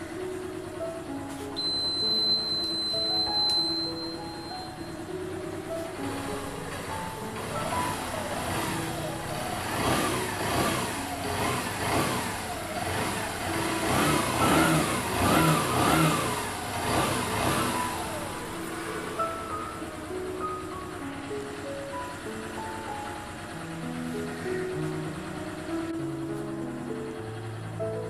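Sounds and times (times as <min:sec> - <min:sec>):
motorcycle engine revving: 0:04.2 - 0:26.0.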